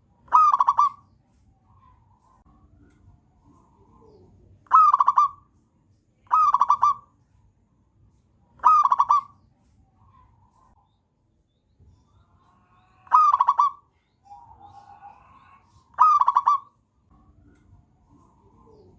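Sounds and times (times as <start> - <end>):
dove cooing: 0.3 - 1.0, 3.6 - 5.5, 6.3 - 7.1, 8.6 - 9.3, 13.0 - 16.8, 18.0 - 18.9.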